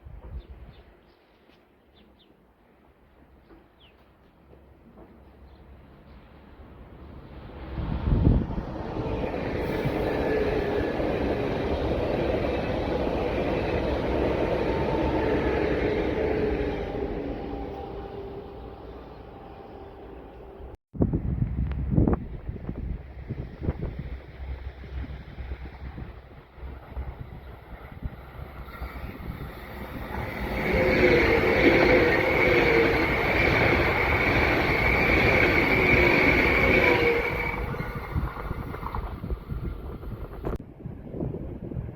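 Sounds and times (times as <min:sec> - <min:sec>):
train passing rumble: 0:02.7 - 0:41.9
wind on microphone: 0:07.6 - 0:14.2, 0:20.9 - 0:41.9.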